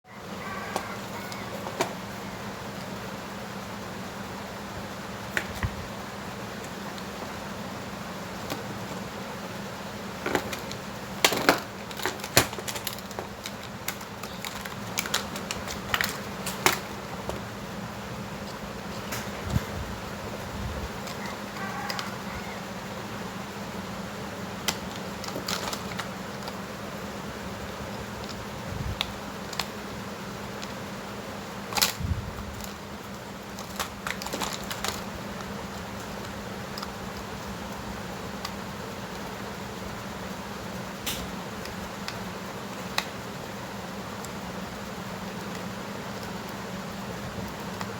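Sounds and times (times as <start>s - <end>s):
steady low hum: 0.1s - 47.9s
tools and plastic parts clicking: 10.2s - 17.4s, 21.9s - 22.1s, 24.6s - 26.6s, 28.2s - 28.4s, 31.7s - 37.8s
small parts clicking: 24.6s - 26.6s, 32.6s - 39.3s.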